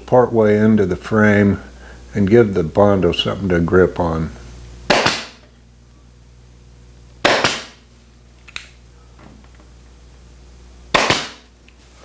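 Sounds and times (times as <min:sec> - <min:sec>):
staple gun firing: 0:04.9 - 0:05.4, 0:07.2 - 0:07.8, 0:11.0 - 0:11.5
small click: 0:08.4 - 0:08.8.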